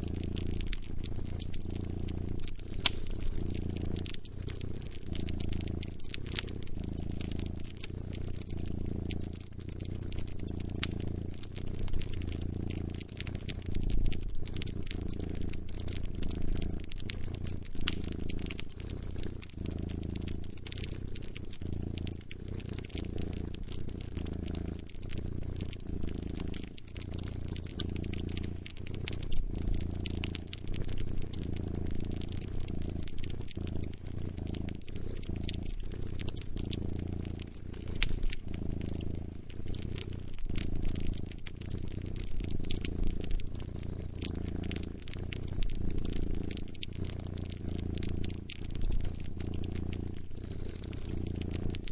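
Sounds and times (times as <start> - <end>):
cat purring: 0.0 - 51.9
wood fire crackling and popping: 0.0 - 51.9.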